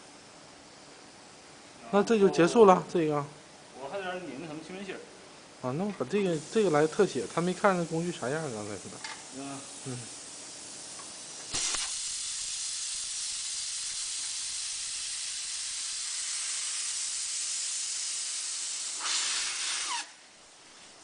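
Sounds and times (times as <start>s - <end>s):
air hissing from tyre valve: 6.2s - 20.3s.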